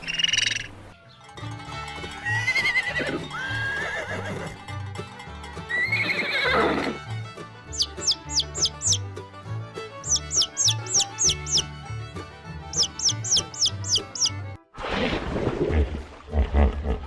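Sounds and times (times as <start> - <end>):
horse whinnying: 2.3 - 4.6, 5.7 - 7.0
music with bass beat: 10.0 - 11.7.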